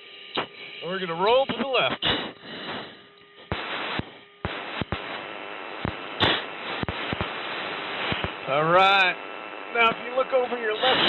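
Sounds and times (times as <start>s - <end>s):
intercom clicks: 0.3s - 2.3s, 5.8s - 11.0s
heavy breathing into mask microphone: 2.0s - 3.1s.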